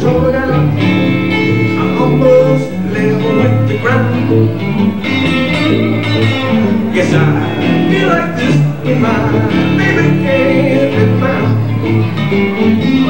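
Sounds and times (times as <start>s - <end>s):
blues band playing: 0.0s - 13.0s
electric guitar: 0.0s - 13.0s
low bass notes: 0.0s - 13.0s.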